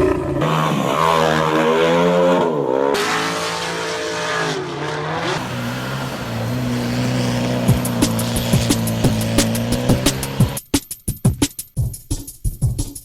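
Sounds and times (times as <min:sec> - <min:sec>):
car engine accelerating hard: 0:00.4 - 0:10.6.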